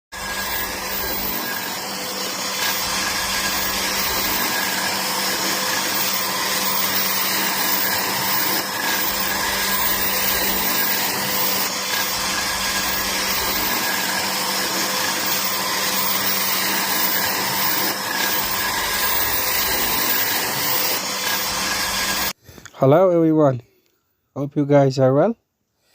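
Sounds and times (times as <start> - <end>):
electric motor humming: 0.1 - 22.4.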